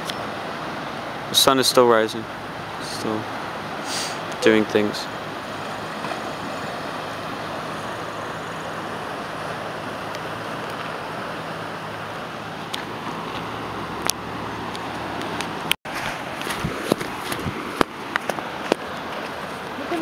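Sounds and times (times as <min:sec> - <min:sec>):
surf rushing: 0:00.0 - 0:20.0
wind: 0:00.0 - 0:20.0.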